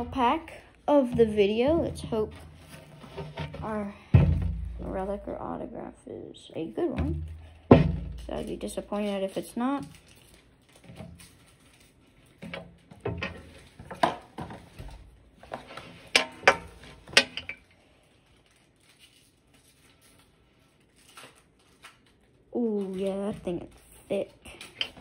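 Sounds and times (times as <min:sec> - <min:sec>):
wrapper crinkling being torn: 0:08.9 - 0:12.9, 0:17.7 - 0:24.8.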